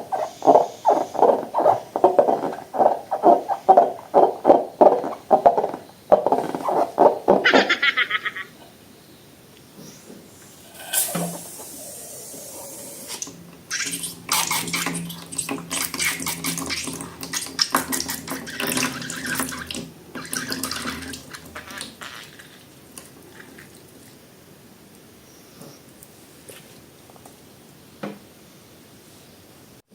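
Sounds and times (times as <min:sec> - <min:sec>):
liquid pouring into container: 0:12.8 - 0:23.9.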